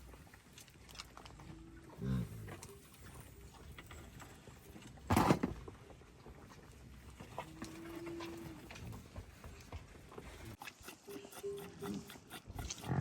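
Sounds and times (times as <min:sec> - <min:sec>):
yaks grunting and snorting: 0:01.9 - 0:02.7, 0:10.6 - 0:13.0.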